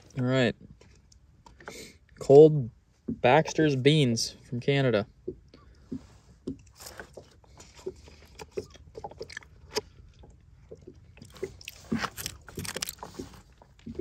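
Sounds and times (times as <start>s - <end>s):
person chewing: 5.9s - 14.0s
spoon and pouch rustling: 11.3s - 14.0s.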